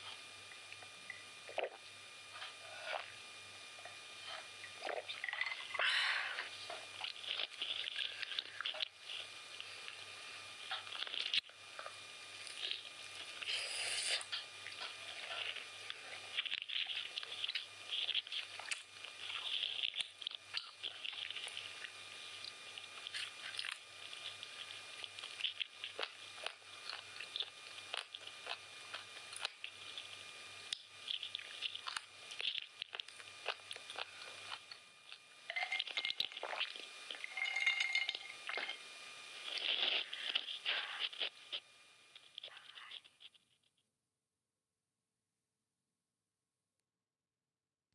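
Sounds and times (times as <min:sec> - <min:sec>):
chewing and biting food: 0:06.5 - 0:10.0, 0:10.6 - 0:41.6.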